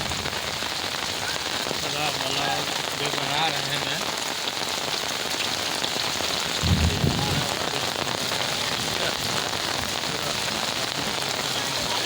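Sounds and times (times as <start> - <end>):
heavy rain hissing: 0.0 - 12.0
low thump: 6.6 - 7.4.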